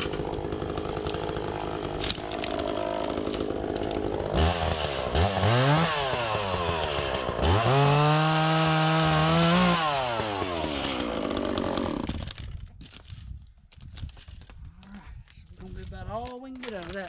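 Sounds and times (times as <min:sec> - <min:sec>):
chainsaw revving: 0:00.0 - 0:12.4.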